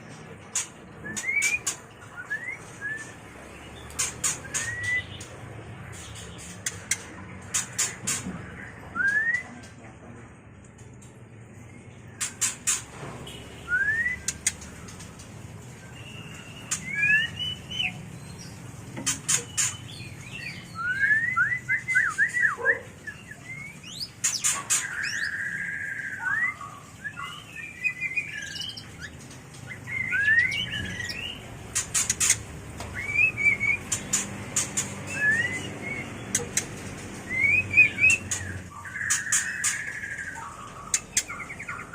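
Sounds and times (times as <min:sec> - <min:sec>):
birds whistling and trilling: 0:00.0 - 0:09.8, 0:11.0 - 0:41.9
sharp bird clicks: 0:03.8 - 0:05.4, 0:06.0 - 0:08.3, 0:14.2 - 0:15.2, 0:29.6 - 0:41.9.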